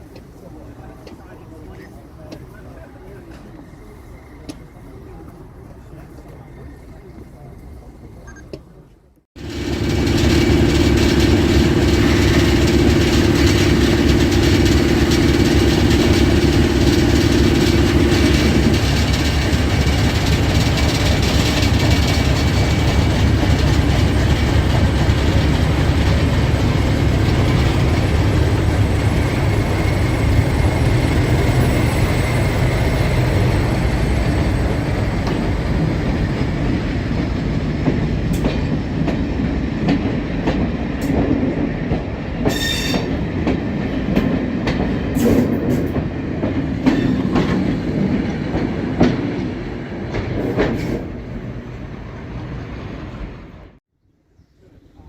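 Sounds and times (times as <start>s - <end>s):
diesel locomotive engine running: 9.4s - 38.4s
train wheels rumbling on rails: 9.4s - 53.6s.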